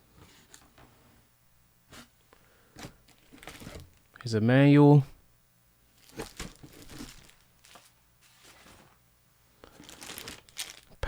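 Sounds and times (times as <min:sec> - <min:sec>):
packaging rustling and crinkling: 0:02.8 - 0:04.1, 0:05.9 - 0:09.0, 0:09.6 - 0:11.0.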